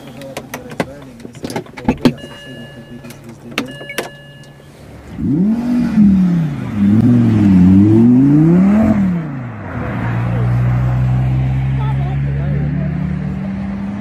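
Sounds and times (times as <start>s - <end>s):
short high beeps: 2.2s - 4.7s
sports car engine revving: 4.5s - 14.0s.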